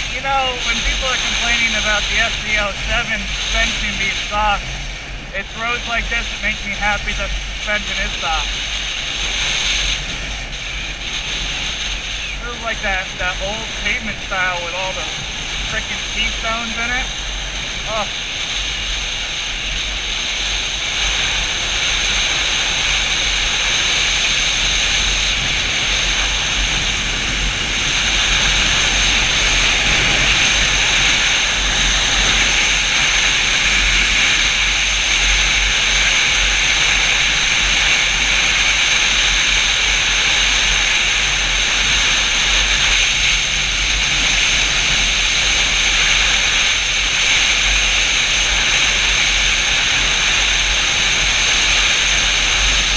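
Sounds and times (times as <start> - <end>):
low motorcycle engine rumble: 0.0 - 18.6
wind rushing over microphone: 0.0 - 52.9.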